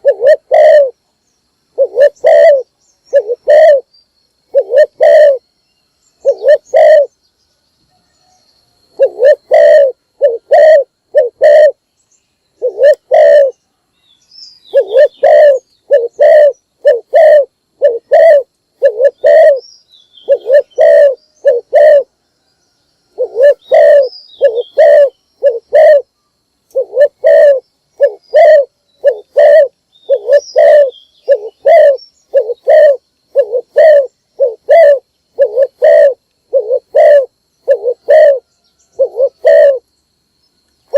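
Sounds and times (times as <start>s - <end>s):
dove cooing: 0.0s - 1.0s, 1.7s - 3.9s, 4.5s - 5.4s, 6.2s - 7.1s, 9.0s - 11.8s, 12.6s - 13.6s, 14.7s - 19.6s, 20.2s - 22.2s, 23.1s - 26.1s, 26.7s - 39.8s
small birds chirping: 0.0s - 7.6s, 8.2s - 40.9s.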